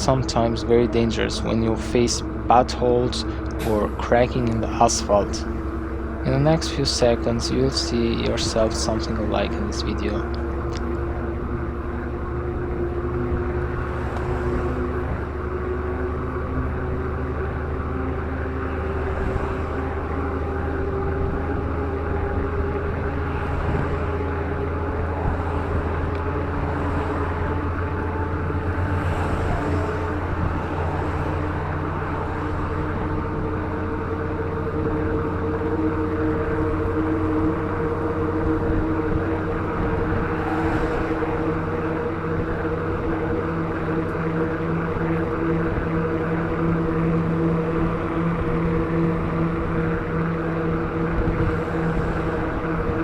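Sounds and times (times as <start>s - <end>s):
truck engine drone: 0.0s - 53.0s
wind rushing over microphone: 18.8s - 53.0s.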